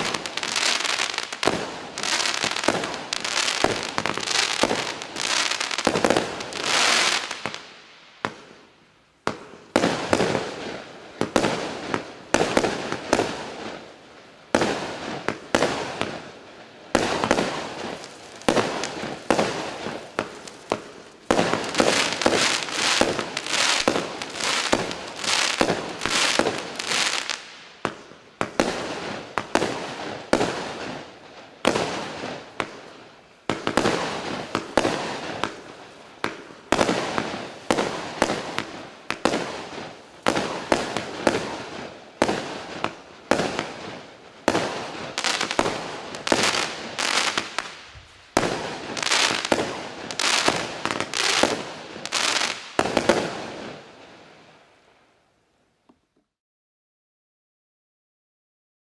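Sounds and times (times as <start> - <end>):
fireworks cake firing shots: 0.0 - 7.6
crackling firework stars: 0.0 - 56.4.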